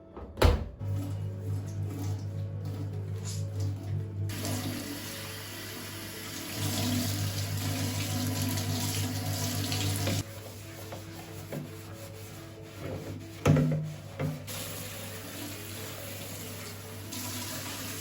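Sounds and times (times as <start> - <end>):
tap running into a sink: 7.7 - 10.2.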